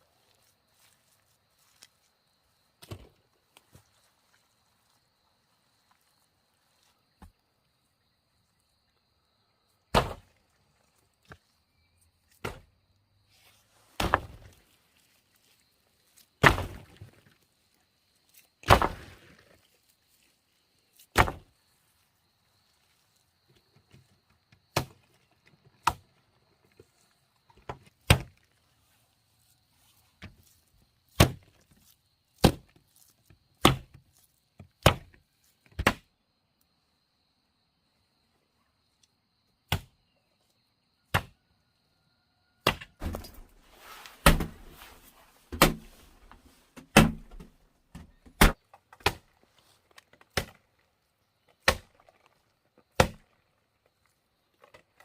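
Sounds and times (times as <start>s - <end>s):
blade chopping wood: 9.9s - 10.3s, 12.4s - 12.7s, 14.0s - 14.5s, 16.4s - 17.0s, 18.6s - 19.2s, 21.1s - 21.5s, 24.8s - 25.0s, 31.2s - 31.5s, 32.4s - 32.8s, 33.6s - 34.0s, 34.8s - 35.2s, 35.8s - 36.1s, 39.7s - 39.9s, 41.1s - 41.4s, 42.6s - 43.6s, 44.2s - 44.7s, 45.5s - 45.9s, 46.8s - 47.5s, 48.3s - 49.2s, 50.3s - 50.6s, 51.6s - 52.0s, 53.0s - 53.2s
rustling: 43.0s - 48.3s.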